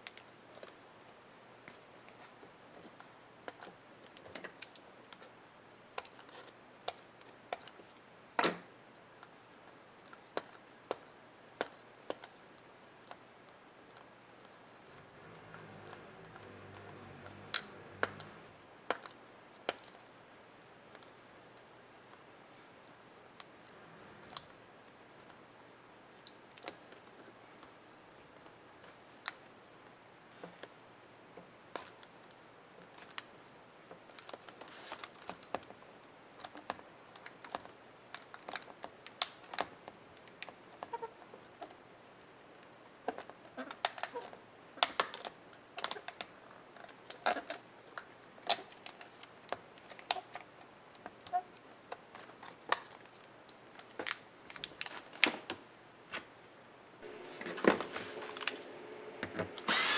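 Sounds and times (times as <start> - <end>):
small power tool running: 57.0 - 59.9.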